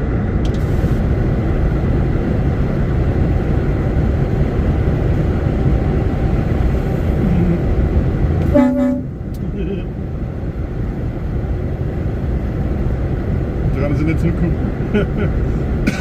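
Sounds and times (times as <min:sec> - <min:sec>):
lorry engine and road rumble: 0:00.0 - 0:16.0
short pitched tone: 0:08.4 - 0:09.2.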